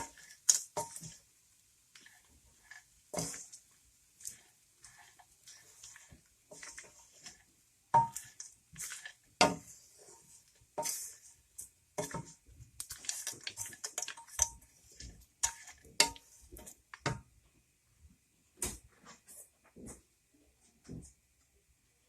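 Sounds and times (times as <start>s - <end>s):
spoon knocking and scraping pan: 0.0s - 17.4s.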